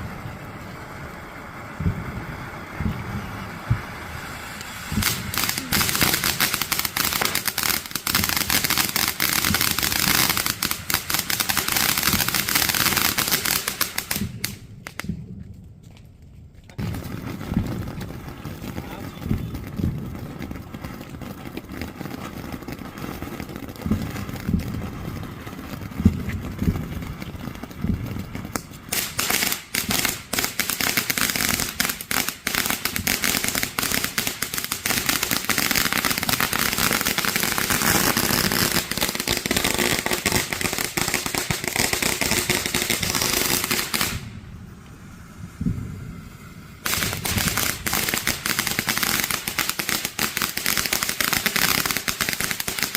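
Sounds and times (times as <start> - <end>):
firework hiss: 0.0 - 15.2, 16.8 - 52.9
rapid crackling firework pops: 0.0 - 45.0, 46.8 - 52.9
firework thumps: 1.8 - 8.7, 9.4 - 12.2, 16.7 - 30.6.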